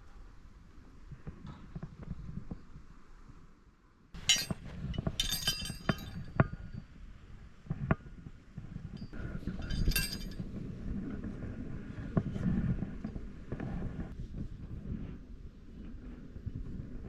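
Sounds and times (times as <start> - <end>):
metal camping gear clinking: 4.2 - 6.4, 9.0 - 10.4.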